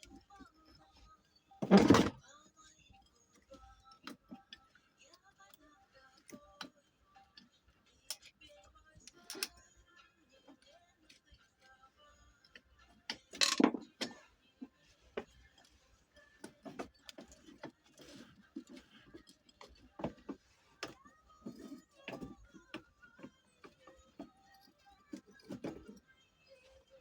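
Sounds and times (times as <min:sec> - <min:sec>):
hand tools clicking and knocking: 0:12.5 - 0:14.2.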